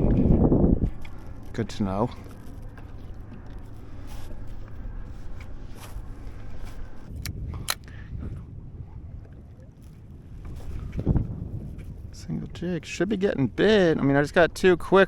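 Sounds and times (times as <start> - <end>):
water rumbling: 0.0 - 15.0
wind: 0.0 - 15.0.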